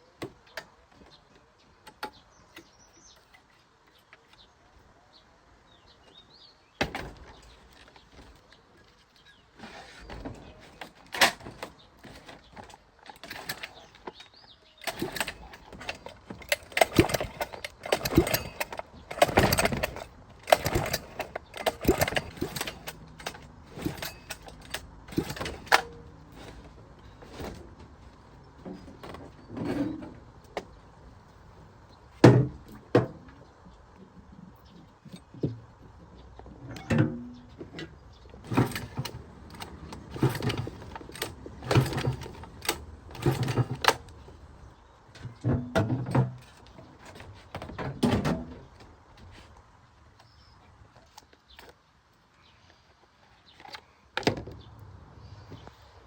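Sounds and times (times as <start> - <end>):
metal tools clinking and clattering: 9.2 - 27.8, 36.7 - 44.3.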